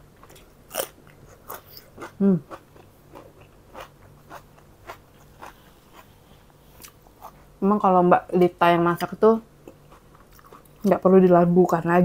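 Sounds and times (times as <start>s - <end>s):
crunchy chewing of cucumber: 0.1s - 7.5s, 9.0s - 11.0s.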